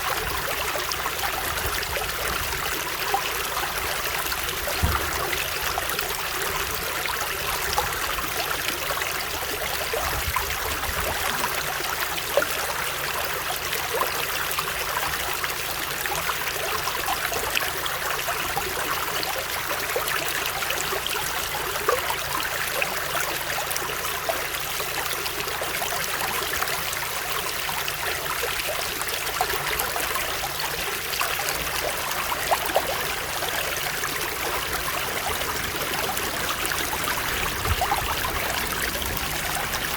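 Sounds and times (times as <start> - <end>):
water running over stones: 0.0 - 39.9.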